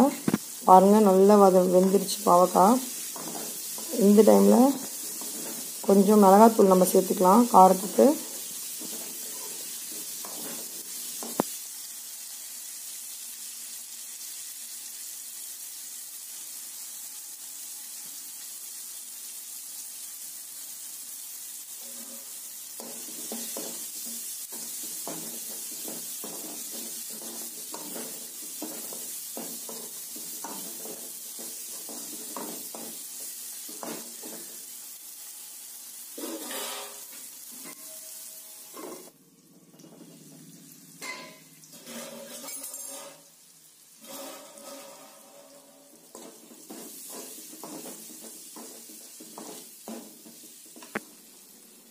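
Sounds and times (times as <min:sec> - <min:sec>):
vegetables sizzling in a pan: 0:00.0 - 0:51.9
steel spoon scraping and stirring: 0:03.0 - 0:04.0, 0:05.0 - 0:05.9, 0:08.7 - 0:11.4, 0:21.8 - 0:23.8, 0:24.5 - 0:33.0, 0:36.2 - 0:38.1, 0:41.0 - 0:43.3, 0:44.0 - 0:49.6.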